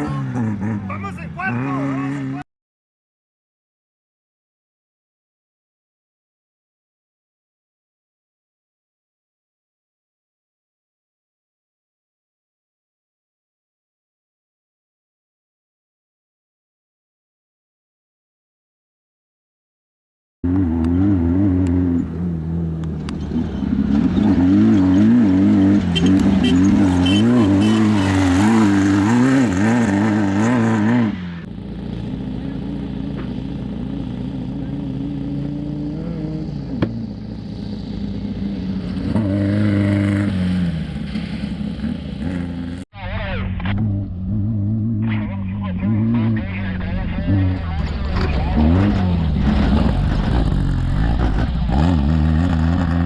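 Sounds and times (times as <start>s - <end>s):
race vehicle engine revving: 0.0s - 2.4s, 20.4s - 53.0s.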